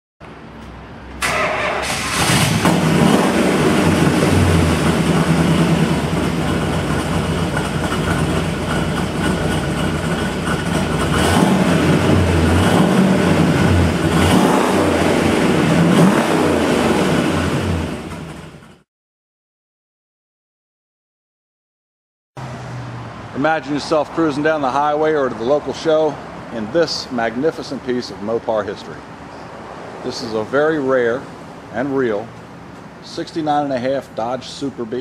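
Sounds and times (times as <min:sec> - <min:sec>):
car engine starting and idling: 0:01.1 - 0:18.8
engine throttle blips: 0:01.1 - 0:18.8.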